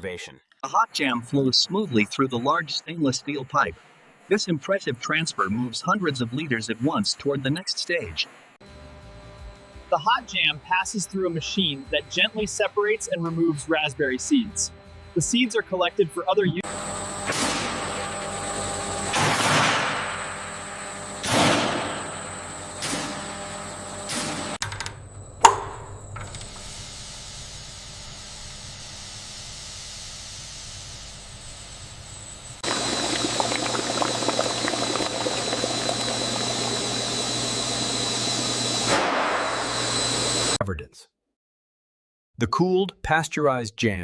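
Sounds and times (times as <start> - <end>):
food processing machinery: 11.6 - 40.6
flowing liquid: 32.6 - 37.7.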